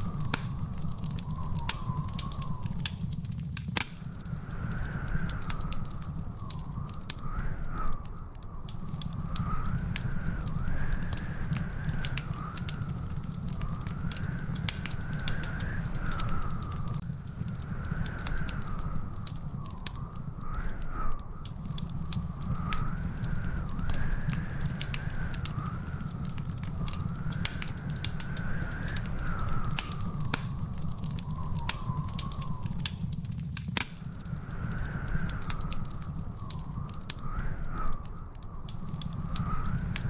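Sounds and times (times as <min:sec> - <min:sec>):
wood fire crackling and popping: 0:00.0 - 0:40.0
thin wavering high whistle: 0:27.6 - 0:33.1.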